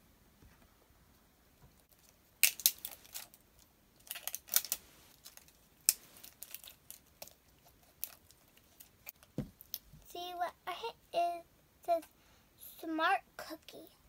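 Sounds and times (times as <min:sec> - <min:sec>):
plastic packaging crinkling: 0:01.9 - 0:09.8.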